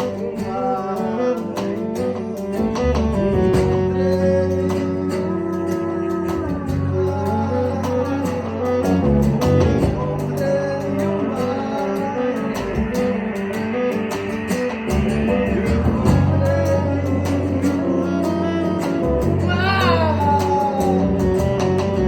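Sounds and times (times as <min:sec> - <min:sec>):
live band music led by guitar: 0:00.0 - 0:22.0.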